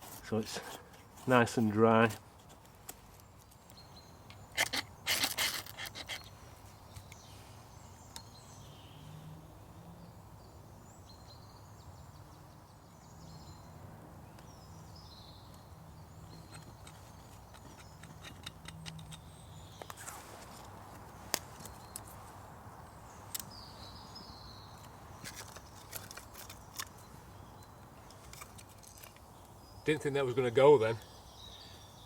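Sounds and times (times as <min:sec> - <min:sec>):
sharp scrapes and knocks: 0:04.3 - 0:06.4, 0:16.4 - 0:22.2, 0:25.2 - 0:27.0.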